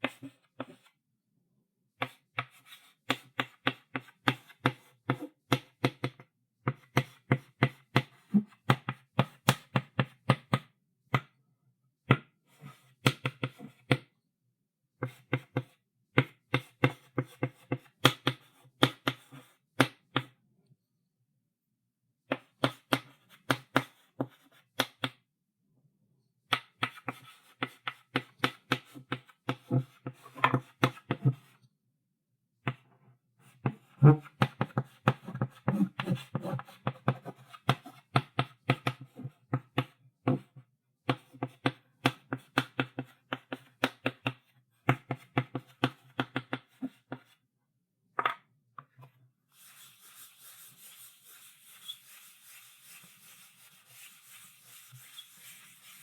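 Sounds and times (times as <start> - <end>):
chalk writing on a blackboard: 34.2 - 39.0, 49.5 - 56.0.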